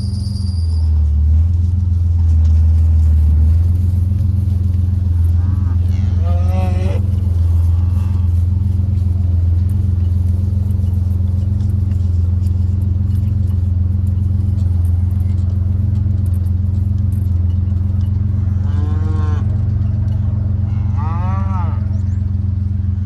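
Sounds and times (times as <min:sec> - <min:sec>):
truck engine running: 0:00.0 - 0:23.0
cow mooing: 0:03.8 - 0:10.9, 0:18.1 - 0:22.1.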